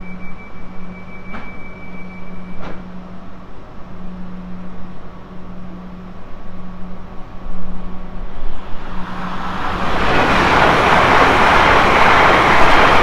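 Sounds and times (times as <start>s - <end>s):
train running hum: 0.0s - 13.0s.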